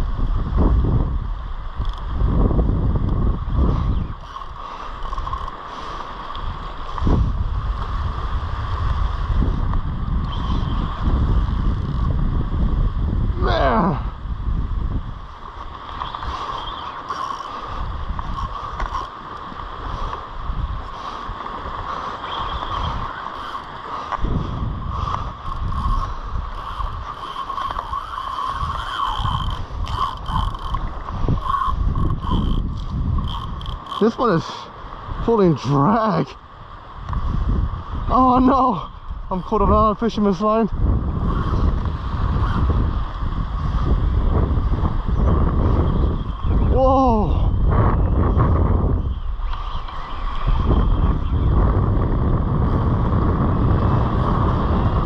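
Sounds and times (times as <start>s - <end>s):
wind buffeting microphone: 0.0s - 55.0s
surf washing: 3.4s - 47.5s
fishing reel drag whining: 15.8s - 19.8s, 22.0s - 24.0s, 24.9s - 34.6s, 42.3s - 42.7s, 49.0s - 51.4s.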